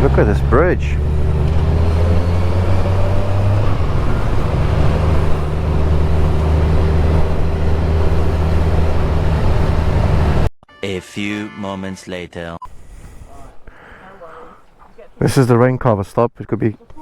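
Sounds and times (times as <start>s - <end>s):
motorcycle engine cruising: 0.0s - 10.5s
wind on microphone: 1.0s - 10.5s.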